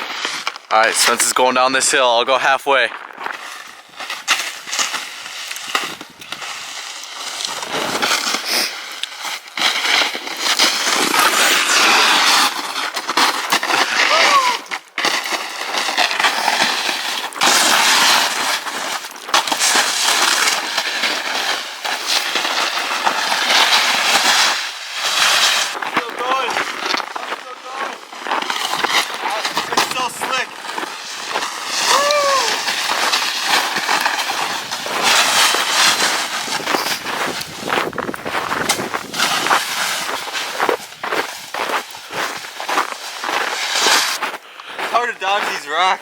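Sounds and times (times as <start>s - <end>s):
footsteps crunching in snow: 0.0s - 46.0s.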